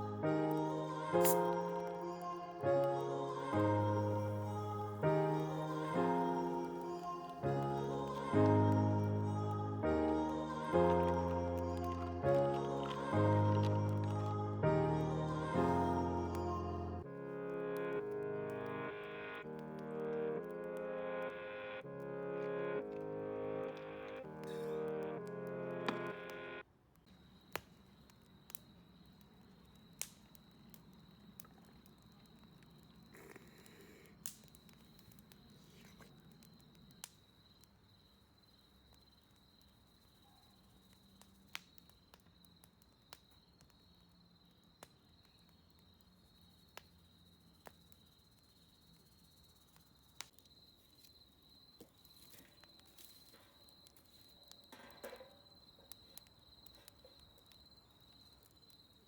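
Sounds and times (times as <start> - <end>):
high insect trill: 0.0 - 17.0
campfire crackling and popping: 0.0 - 20.9, 22.4 - 59.0.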